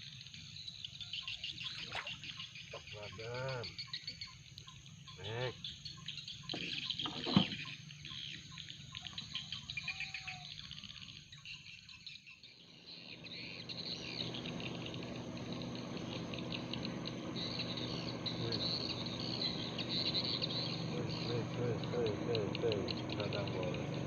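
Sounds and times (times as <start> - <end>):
insects chirping: 0.0 - 24.0
low steady hum: 12.8 - 24.0.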